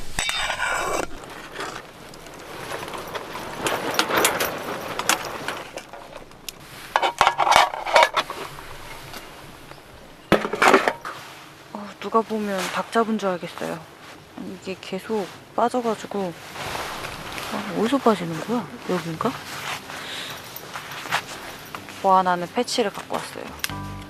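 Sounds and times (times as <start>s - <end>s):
rustling: 0.0s - 24.0s
light clicks and clinks: 1.0s - 11.2s, 18.9s - 23.8s.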